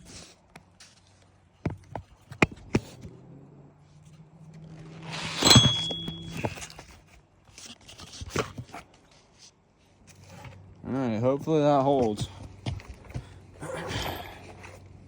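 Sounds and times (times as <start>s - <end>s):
ringing metallic strike: 5.0s - 6.6s.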